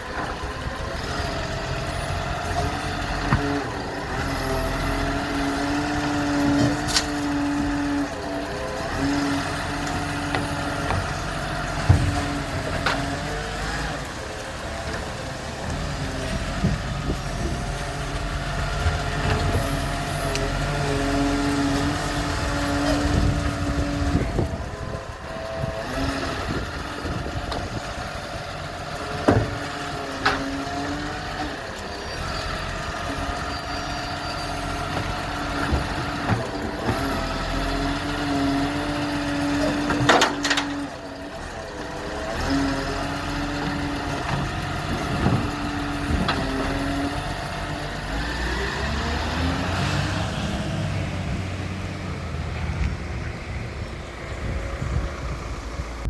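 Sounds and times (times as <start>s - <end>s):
garbage truck diesel engine: 0.0s - 56.0s
hydraulic whine: 0.0s - 56.0s
bins banging: 10.0s - 13.7s.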